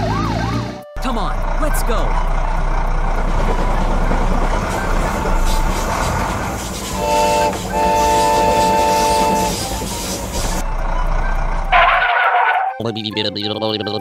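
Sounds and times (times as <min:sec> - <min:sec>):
chord-like vehicle horn: 0:04.3 - 0:10.5, 0:11.2 - 0:12.8.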